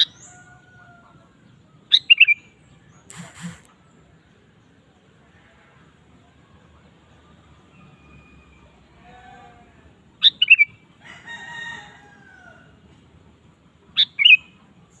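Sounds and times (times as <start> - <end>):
bird song bursts: 1.8 - 4.3, 10.2 - 10.8, 14.0 - 14.6.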